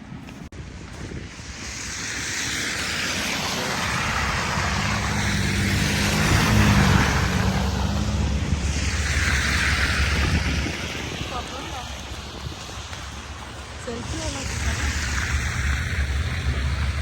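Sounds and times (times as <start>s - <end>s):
tyres hissing on slush: 1.3s - 17.0s
vehicle engine hum: 1.4s - 17.0s.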